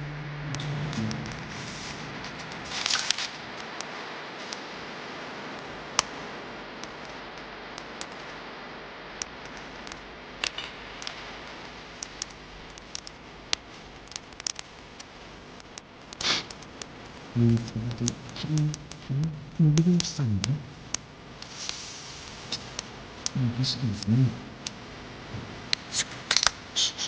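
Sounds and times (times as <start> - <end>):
steady hiss: 0.0 - 27.0
sharp ticks and clicks: 5.6 - 6.2, 6.8 - 8.4, 9.1 - 19.1, 25.7 - 27.0.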